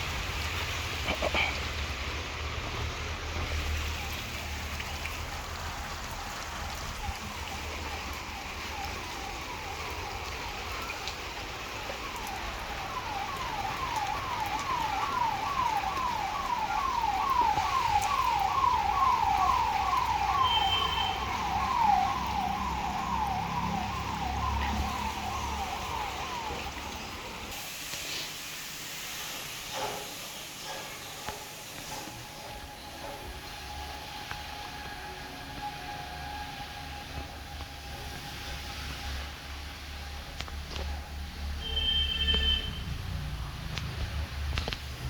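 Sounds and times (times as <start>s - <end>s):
siren wailing: 6.6s - 27.6s, 31.9s - 41.2s.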